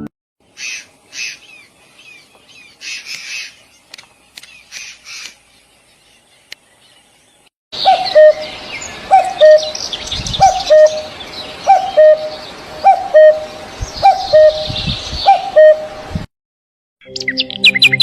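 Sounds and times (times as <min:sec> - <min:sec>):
small birds chirping: 0:00.4 - 0:15.8.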